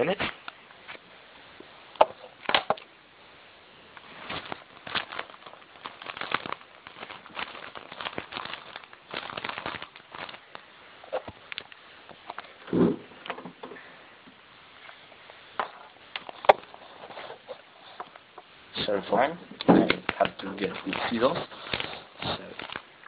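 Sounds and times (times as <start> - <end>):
wrapping crinkling: 3.9 - 12.7, 14.7 - 19.2, 19.9 - 23.0.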